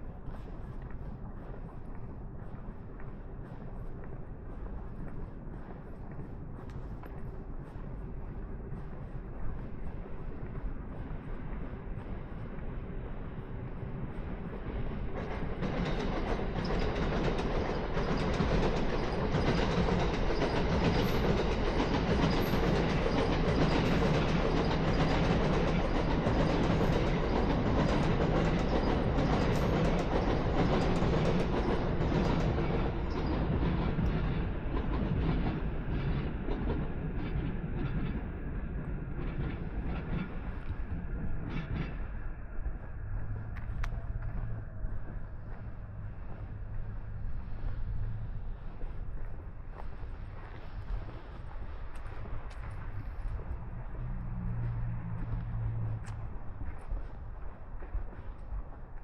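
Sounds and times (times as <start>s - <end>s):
train passing on rails: 0.0s - 59.0s.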